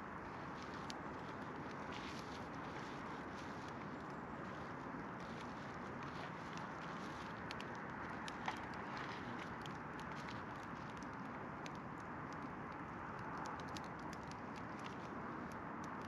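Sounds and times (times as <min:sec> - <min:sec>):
campfire crackling and popping: 0:05.1 - 0:16.0.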